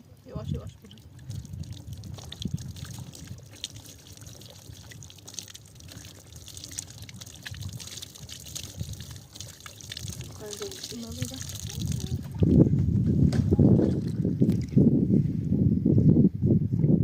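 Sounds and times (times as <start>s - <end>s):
water trickling: 0.0s - 12.7s.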